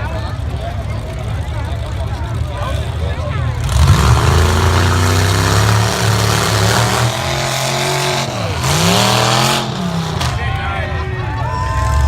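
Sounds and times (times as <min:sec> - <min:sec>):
truck engine revving high: 0:02.4 - 0:12.0.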